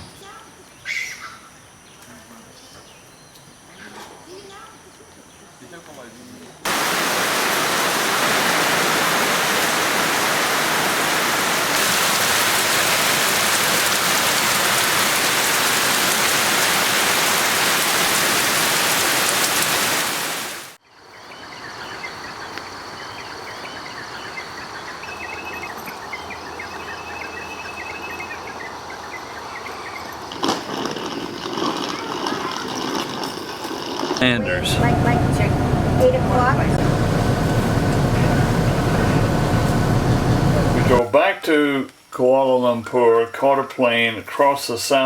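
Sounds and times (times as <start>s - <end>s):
high-pitched drone: 34.2s - 41.0s
loud rushing noise: 34.2s - 41.0s.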